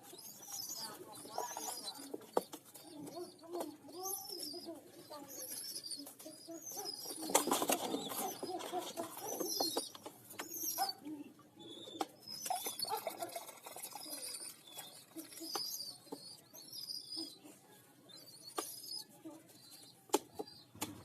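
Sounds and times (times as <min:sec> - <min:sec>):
pigeon squabs squeaky calls: 0:00.0 - 0:11.0, 0:11.6 - 0:17.4, 0:18.1 - 0:21.0
low pigeon sounds: 0:00.0 - 0:21.0
sharp clicks and taps: 0:20.1 - 0:21.0.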